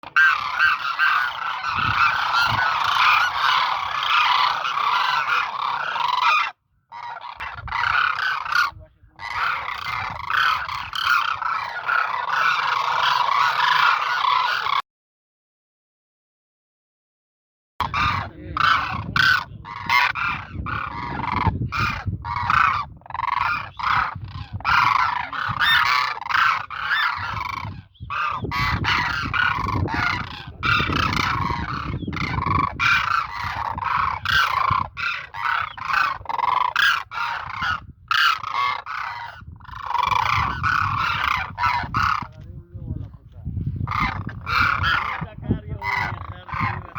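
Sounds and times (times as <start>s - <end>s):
cranes honking: 0.0s - 14.8s, 17.8s - 42.3s, 43.9s - 46.9s.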